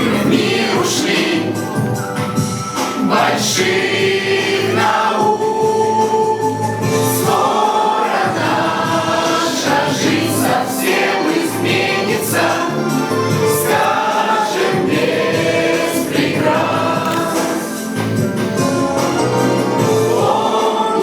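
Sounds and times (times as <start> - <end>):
group singing in chorus: 0.0 - 21.0
musical accompaniment: 0.0 - 21.0.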